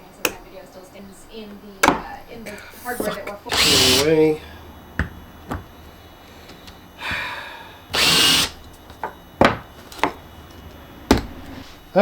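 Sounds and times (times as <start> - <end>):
handheld power tool running: 0.0 - 12.0
sharp knocks: 1.8 - 2.3.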